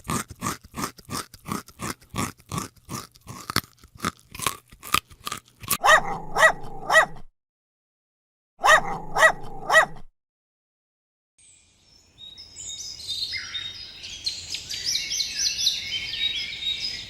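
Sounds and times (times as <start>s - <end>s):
rapid crunching: 0.0s - 5.8s.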